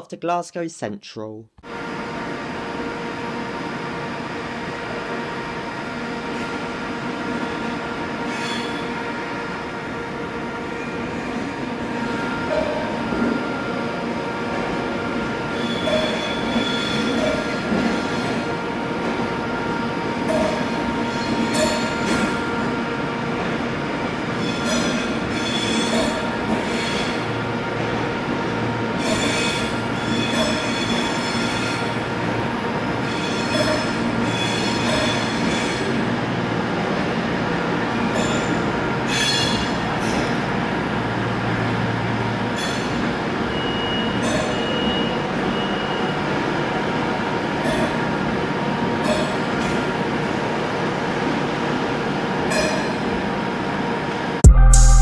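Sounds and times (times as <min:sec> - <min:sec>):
electric train hum and rumble: 0:01.7 - 0:54.4
high-pitched train squeals: 0:07.3 - 0:09.2, 0:15.2 - 0:18.6, 0:19.8 - 0:22.8, 0:24.3 - 0:27.6, 0:28.9 - 0:36.0, 0:38.0 - 0:40.4, 0:42.5 - 0:46.3, 0:49.0 - 0:49.9.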